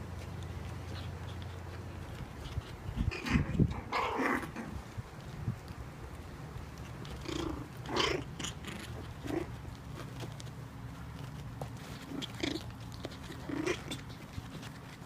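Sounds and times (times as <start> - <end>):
puppies growling: 0.0 - 5.4, 6.6 - 15.0.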